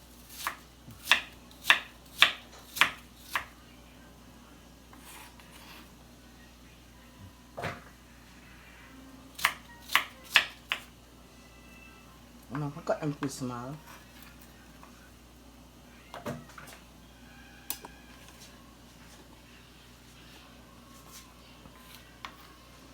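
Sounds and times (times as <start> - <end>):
knife chopping vegetables: 0.2 - 3.5, 9.3 - 10.9.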